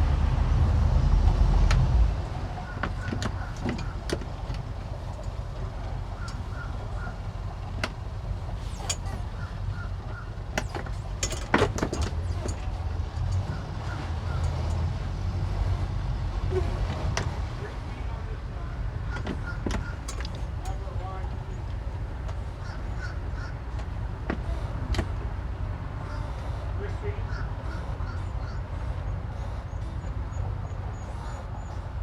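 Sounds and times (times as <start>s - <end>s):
boat engine idling: 0.0s - 32.0s
sharp clicks and knocks: 1.6s - 14.9s, 19.1s - 25.3s.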